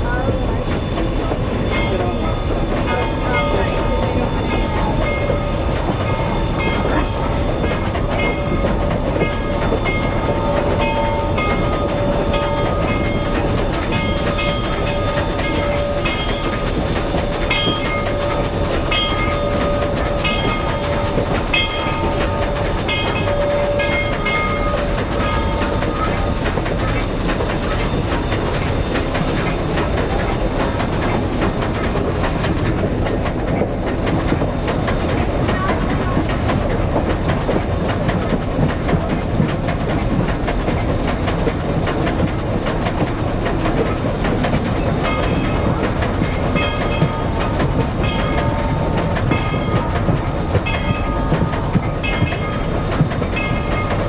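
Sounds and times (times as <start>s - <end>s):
train rumbling: 0.0s - 54.0s
wheels clicking over rails: 0.0s - 54.0s.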